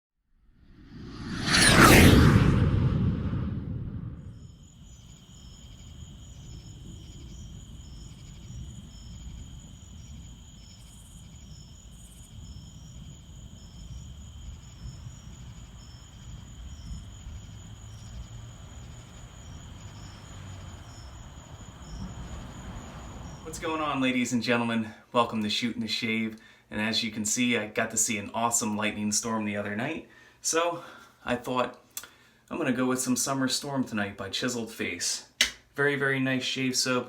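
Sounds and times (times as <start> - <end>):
low rumble: 0.5 - 4.7
cricket chirping in regular pulse: 0.8 - 24.0
cricket trilling: 4.3 - 23.9.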